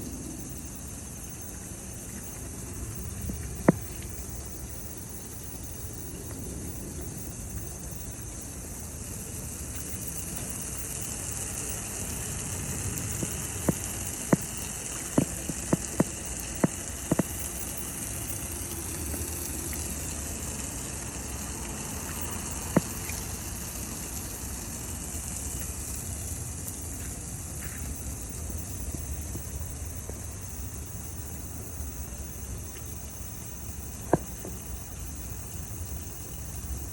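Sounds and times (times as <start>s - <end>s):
water spraying: 8.5s - 31.3s.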